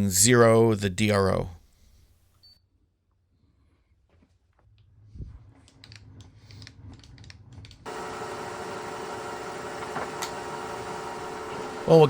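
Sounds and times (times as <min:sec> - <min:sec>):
milling machine humming: 0:07.9 - 0:12.0.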